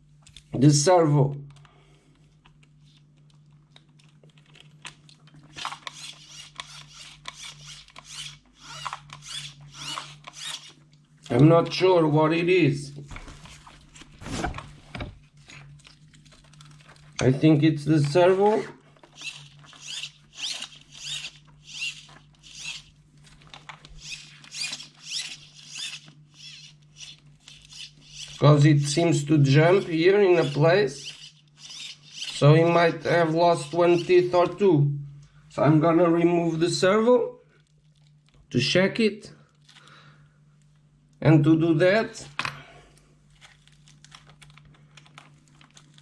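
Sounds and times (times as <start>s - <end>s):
servo whirring bursts: 14.2s - 14.9s.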